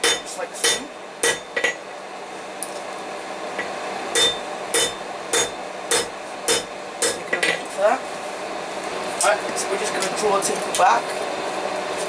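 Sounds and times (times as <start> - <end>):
hammer ringing on steel and anvil: 0.0 - 1.8, 4.2 - 7.3.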